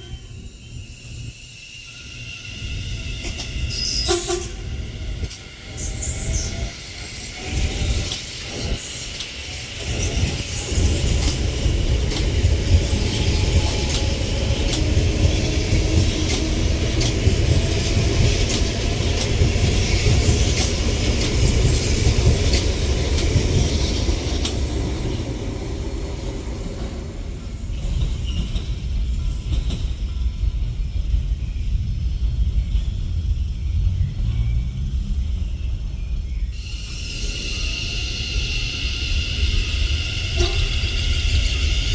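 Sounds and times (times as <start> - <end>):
train rumbling on track: 0.0 - 41.9
hiss: 0.6 - 24.8, 36.6 - 41.9.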